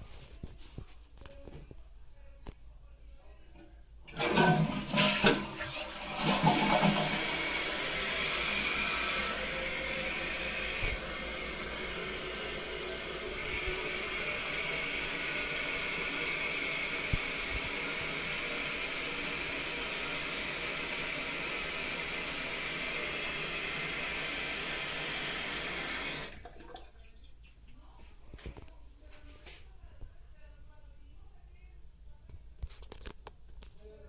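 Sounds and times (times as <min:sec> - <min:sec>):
toilet tank refilling hiss: 0:04.1 - 0:26.6.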